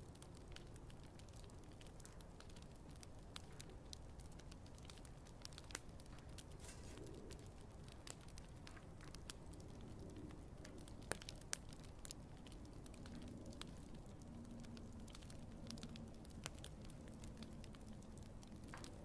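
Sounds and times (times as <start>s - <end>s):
campfire crackling: 0.0s - 19.0s
wood popping: 15.1s - 19.0s.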